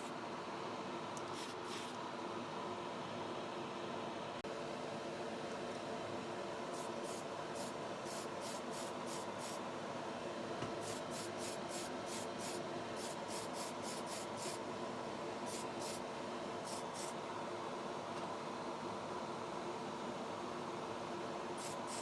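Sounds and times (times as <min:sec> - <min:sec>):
paint spray bursts: 0:01.3 - 0:01.9, 0:06.8 - 0:09.6, 0:10.8 - 0:14.6, 0:15.5 - 0:16.0, 0:16.7 - 0:17.1, 0:21.6 - 0:22.0.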